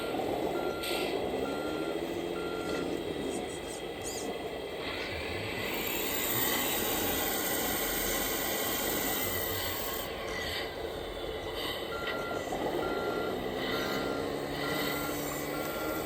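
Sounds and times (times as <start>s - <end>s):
reversing beeper beeps: 0.0s - 4.3s, 11.8s - 16.0s
rc truck motor whirring: 3.3s - 12.0s, 12.6s - 16.0s.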